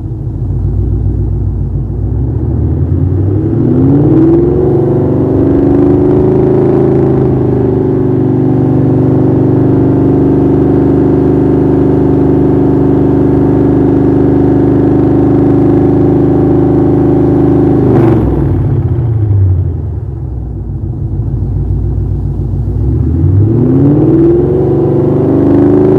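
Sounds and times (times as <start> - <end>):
car engine revving: 0.0 - 25.9.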